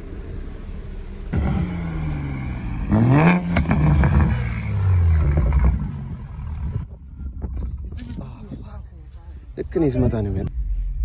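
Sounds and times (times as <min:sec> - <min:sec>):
car engine revving: 0:01.3 - 0:07.0.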